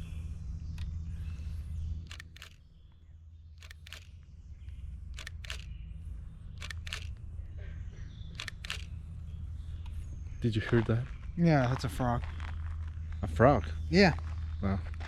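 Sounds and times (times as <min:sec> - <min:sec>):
frog calling with sharp clicks: 0:06.6 - 0:07.2.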